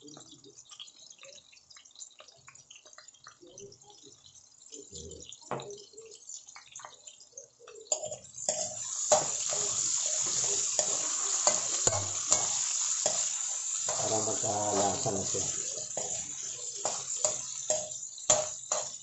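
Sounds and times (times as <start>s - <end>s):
potatoes frying in oil: 0.0s - 19.0s
metal spatula scraping a wok: 8.5s - 19.0s.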